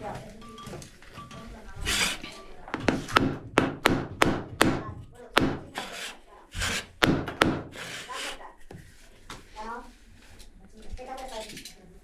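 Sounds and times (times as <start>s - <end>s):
brief scrape: 1.8s - 2.4s, 5.8s - 7.0s, 7.7s - 8.5s
sharp knocks on hard material: 2.8s - 5.8s, 7.0s - 7.8s.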